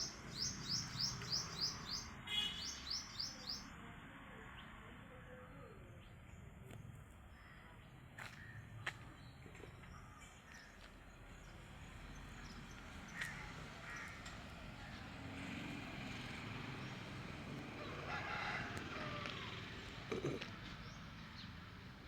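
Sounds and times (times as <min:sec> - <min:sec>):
birds calling: 0:00.0 - 0:03.7, 0:12.3 - 0:15.5.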